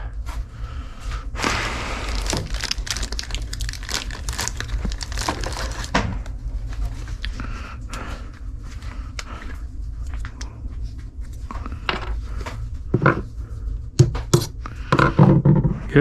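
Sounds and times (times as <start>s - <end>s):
steady low hum: 0.0s - 16.0s
rummaging through loose hardware: 2.1s - 6.2s.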